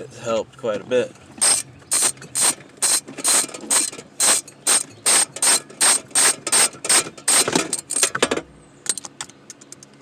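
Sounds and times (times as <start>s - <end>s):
hand ratchet clicking: 1.4s - 8.1s.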